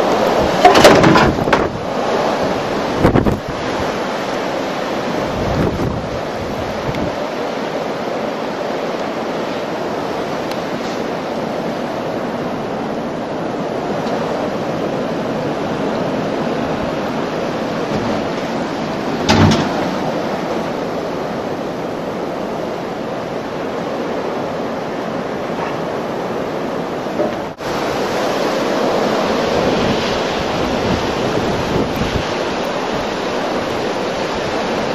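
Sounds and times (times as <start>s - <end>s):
wind blowing against microphone: 0.0s - 34.9s
wind gust thump: 0.2s - 3.9s, 16.8s - 20.7s.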